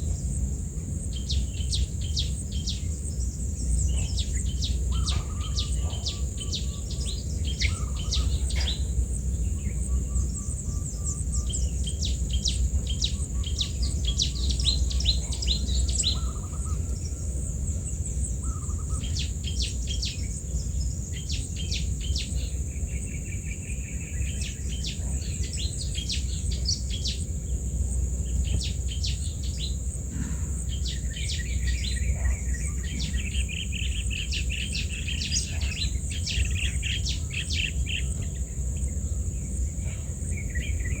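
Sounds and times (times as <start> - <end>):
birds chirping: 0.0 - 41.0
high-pitched insect hum: 0.0 - 41.0.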